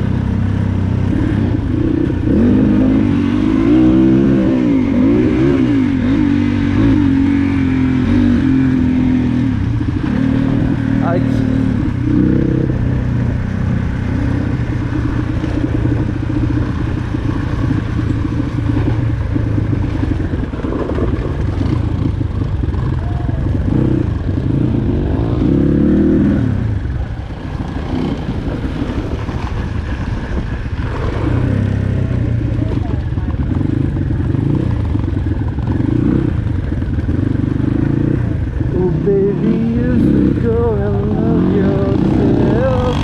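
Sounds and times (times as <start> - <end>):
dirt bike engine running: 0.0 - 43.0
road rumble: 0.0 - 43.0
wind on microphone: 26.1 - 36.7.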